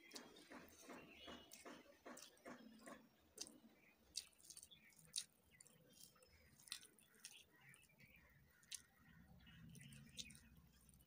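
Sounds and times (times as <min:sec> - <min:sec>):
person chewing rice: 0:00.0 - 0:09.0, 0:09.7 - 0:11.0.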